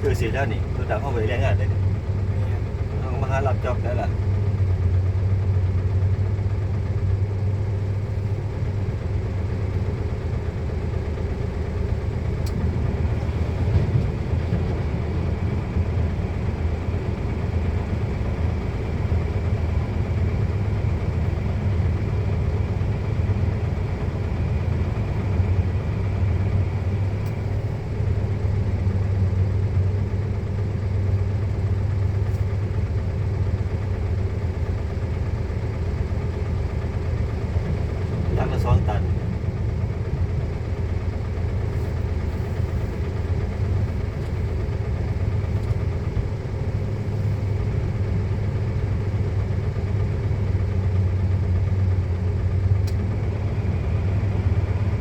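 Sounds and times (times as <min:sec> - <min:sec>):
heavy truck engine running: 0:00.0 - 0:55.0.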